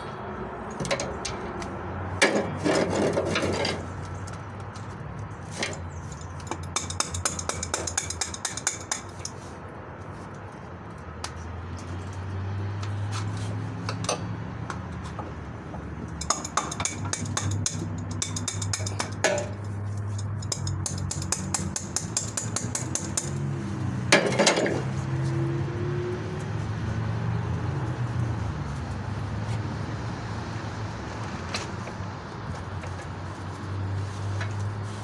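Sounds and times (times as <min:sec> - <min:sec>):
metal tools clinking: 0:05.4 - 0:09.5, 0:16.1 - 0:23.5.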